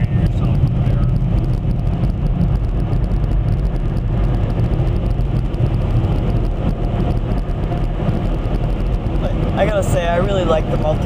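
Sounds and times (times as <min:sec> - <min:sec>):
car wash machinery rumbling: 0:00.0 - 0:11.0.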